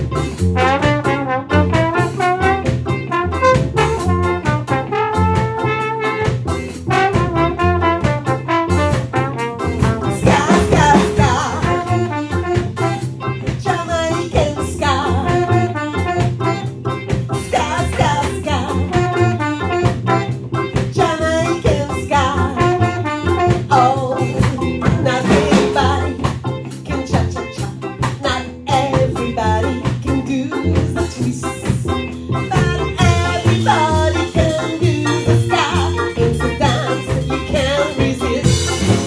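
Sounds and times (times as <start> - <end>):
ska band playing: 0.0 - 39.0
woman singing: 10.0 - 16.7, 17.4 - 20.2, 20.9 - 39.0.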